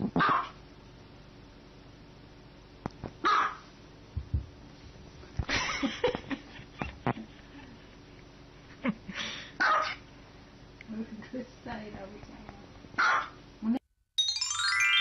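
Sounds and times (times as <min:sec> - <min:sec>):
small dog barking: 0:00.2 - 0:00.6, 0:03.2 - 0:03.6, 0:09.6 - 0:10.0, 0:13.0 - 0:13.4.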